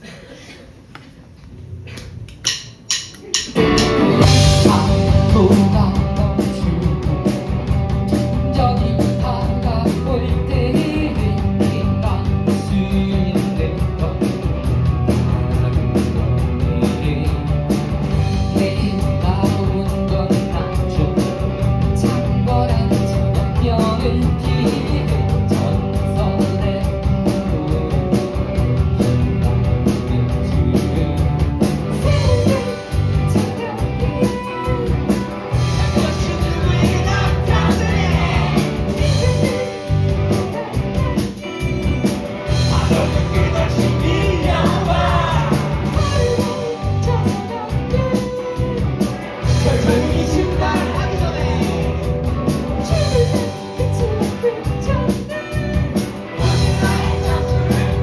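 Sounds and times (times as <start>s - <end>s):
live rock band playing: 3.2s - 58.0s
person singing: 3.3s - 14.5s, 32.0s - 58.0s.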